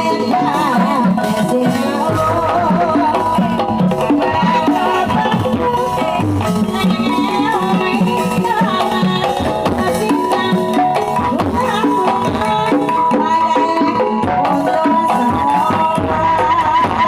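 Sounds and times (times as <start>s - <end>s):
hand drum strokes: 0.2s - 17.0s
held melodic tones: 1.2s - 10.8s.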